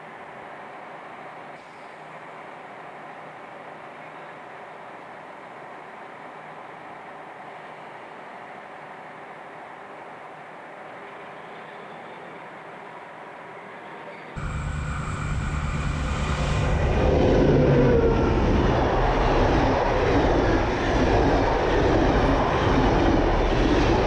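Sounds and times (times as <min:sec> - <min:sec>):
train rumbling close by: 0:14.4 - 0:24.0.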